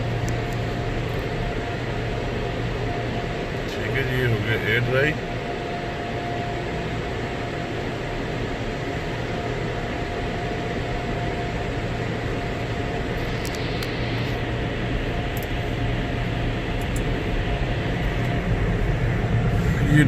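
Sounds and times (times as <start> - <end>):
faint steady whine: 0.0 - 20.0
car wash air dryer blowing: 13.1 - 20.0.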